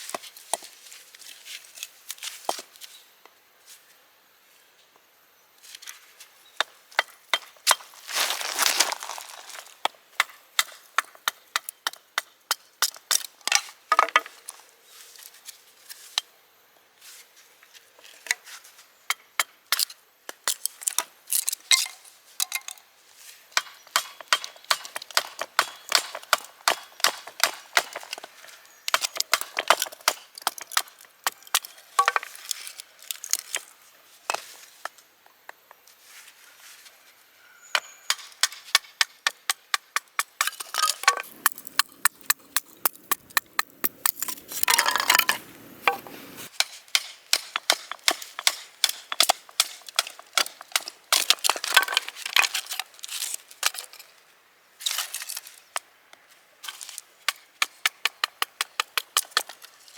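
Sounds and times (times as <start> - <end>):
sharp irregular clicks and cracks: 40.9 - 45.4.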